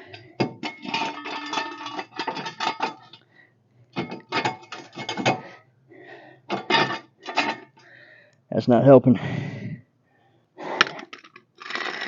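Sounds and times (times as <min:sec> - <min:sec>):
metal parts clinking: 0:00.0 - 0:03.2, 0:04.0 - 0:05.4, 0:06.5 - 0:07.8.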